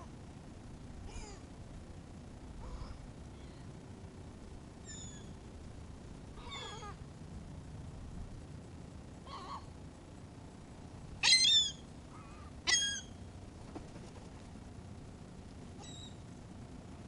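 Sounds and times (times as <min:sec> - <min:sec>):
gulls calling: 0:11.2 - 0:13.2.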